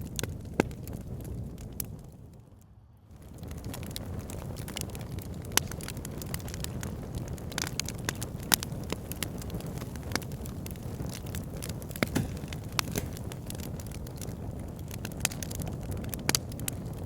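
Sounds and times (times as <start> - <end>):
fire pit crackling and popping: 0.0 - 17.0.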